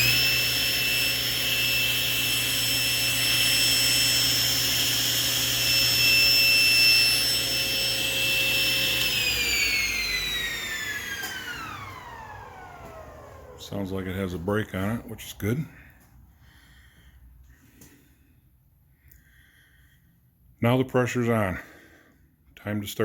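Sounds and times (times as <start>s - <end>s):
table saw whining and winding down: 0.0s - 15.4s.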